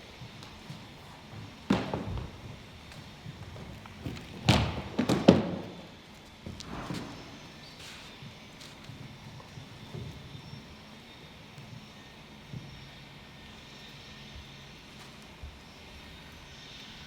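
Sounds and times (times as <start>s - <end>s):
knocks and thuds: 1.4s - 5.9s.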